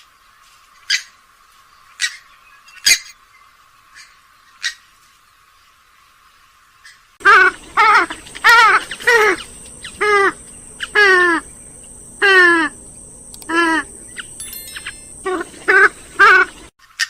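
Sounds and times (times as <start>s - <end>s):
swamphen calling: 6.8s - 16.7s.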